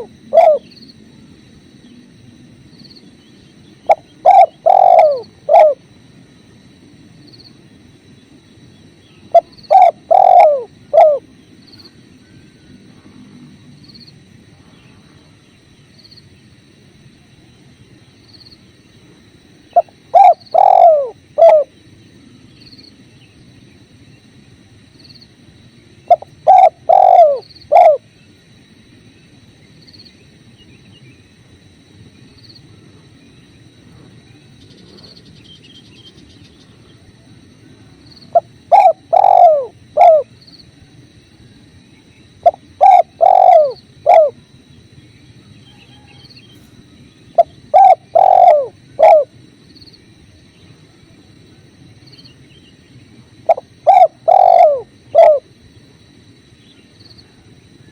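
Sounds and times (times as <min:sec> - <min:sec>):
dove cooing: 0:00.0 - 0:00.8, 0:03.8 - 0:05.9, 0:09.3 - 0:11.3, 0:19.7 - 0:21.8, 0:26.1 - 0:28.1, 0:38.3 - 0:40.4, 0:42.4 - 0:44.4, 0:47.3 - 0:49.4, 0:53.4 - 0:55.6.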